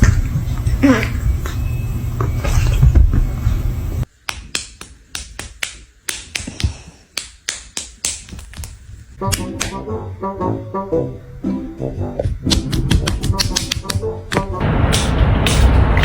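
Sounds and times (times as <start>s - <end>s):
music: 9.2s - 14.6s
sharp smacks: 14.9s - 16.0s.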